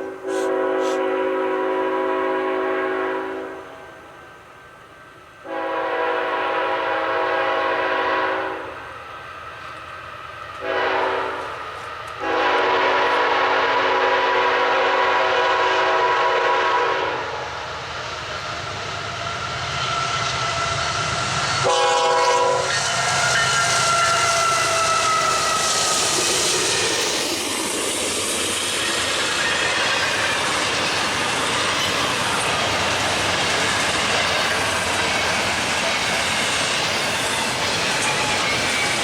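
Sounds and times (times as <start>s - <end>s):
locomotive air horn blasts: 0.0s - 3.9s, 5.4s - 8.7s, 10.6s - 11.5s, 12.2s - 17.4s, 21.6s - 24.3s
train rumble: 0.0s - 39.0s.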